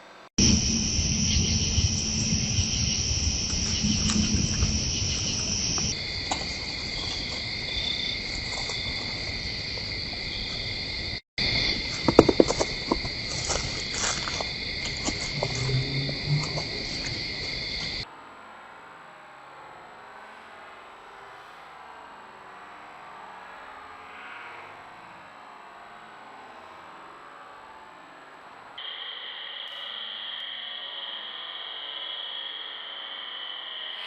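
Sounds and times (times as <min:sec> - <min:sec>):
insects trilling: 0:00.4 - 0:18.0, 0:28.8 - 0:34.0
sharp clicks and knocks: 0:11.9 - 0:15.7.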